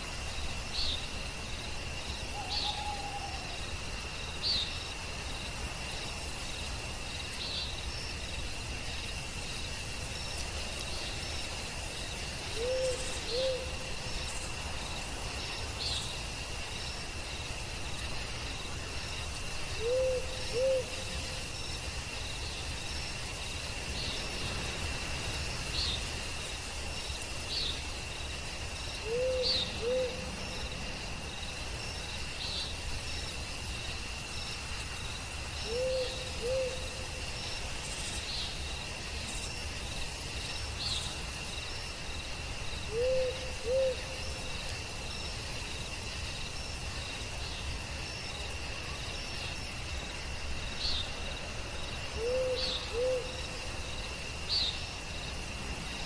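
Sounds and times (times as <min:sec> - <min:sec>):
crickets droning: 0:00.0 - 0:56.0
owl hooting: 0:02.4 - 0:03.6, 0:12.6 - 0:13.7, 0:19.8 - 0:20.9, 0:29.0 - 0:30.3, 0:35.7 - 0:36.9, 0:42.9 - 0:44.1, 0:52.2 - 0:53.4.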